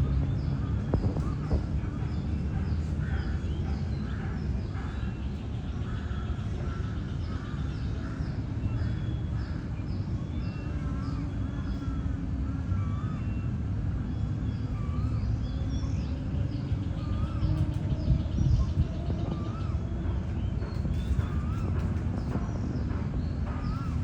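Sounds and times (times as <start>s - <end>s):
steady low rumble: 0.0s - 24.0s
wavering whistled bird notes: 10.0s - 24.0s.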